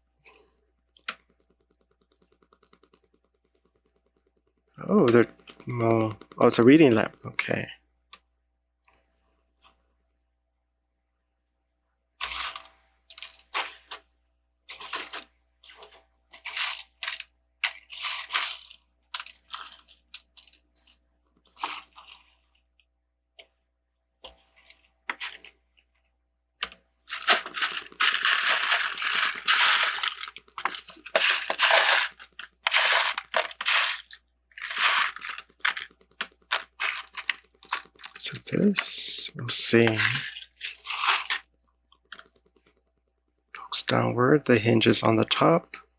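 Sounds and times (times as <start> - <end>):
plastic bricks rattling: 14.7 - 22.2, 26.6 - 41.4.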